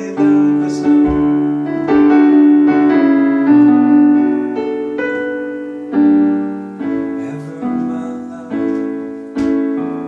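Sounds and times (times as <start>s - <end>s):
person singing: 0.0s - 1.8s, 6.9s - 9.6s
piano playing sustained chords: 0.0s - 10.0s.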